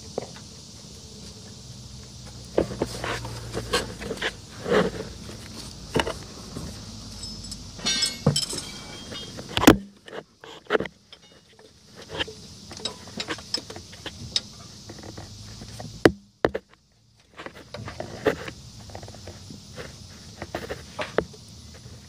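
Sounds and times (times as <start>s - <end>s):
hand tools clinking on metal: 7.1s - 9.6s, 11.0s - 13.7s
sharp metal knocks: 7.2s - 10.0s.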